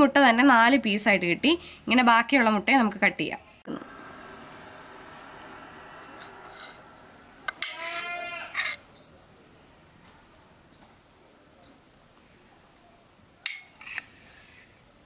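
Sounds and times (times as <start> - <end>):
birds chirping: 7.8 - 13.4.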